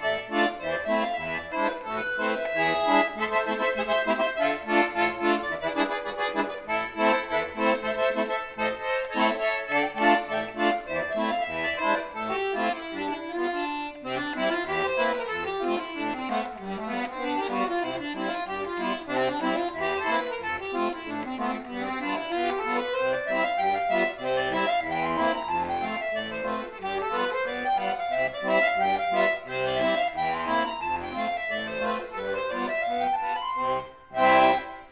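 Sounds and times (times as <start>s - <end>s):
accordion playing: 0.0s - 34.9s.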